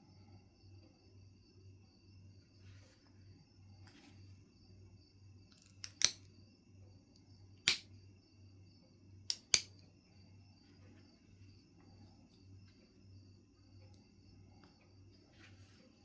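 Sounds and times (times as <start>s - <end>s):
stone flakes snapping clicks: 5.5s - 6.3s, 7.6s - 7.9s, 9.3s - 9.8s.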